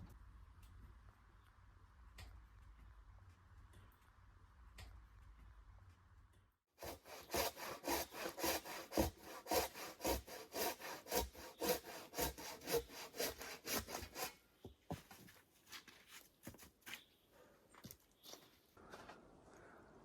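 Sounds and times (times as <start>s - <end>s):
hand saw cutting wood: 6.8s - 14.4s.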